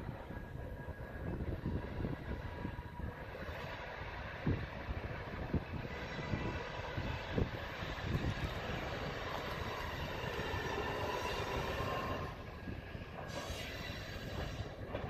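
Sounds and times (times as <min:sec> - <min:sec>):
thin wheel squeal: 0:13.3 - 0:14.7.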